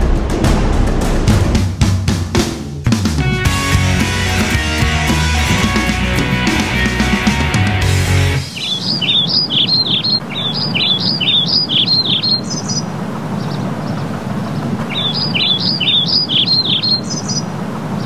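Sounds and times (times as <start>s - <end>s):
songbird singing: 8.4s - 17.5s.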